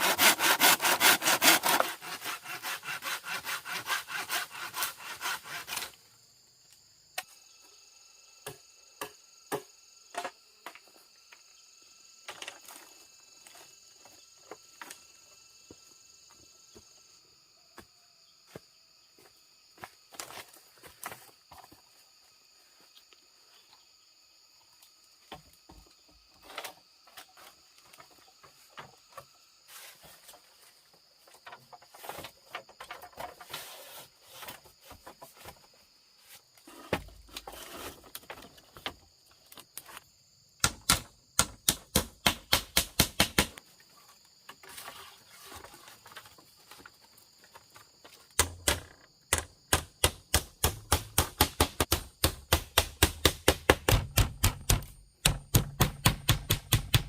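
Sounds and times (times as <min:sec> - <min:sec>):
high insect drone: 0:00.0 - 0:57.0
tool knocking on wood: 0:48.4 - 0:57.0.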